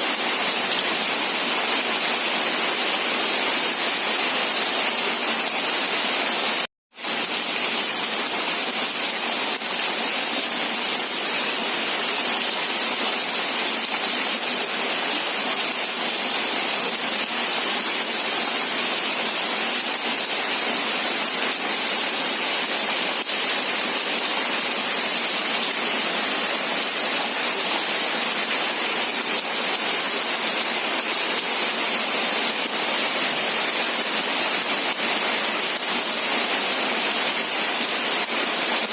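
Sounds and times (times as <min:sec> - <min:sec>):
steady rain hiss: 0:13.4 - 0:38.9.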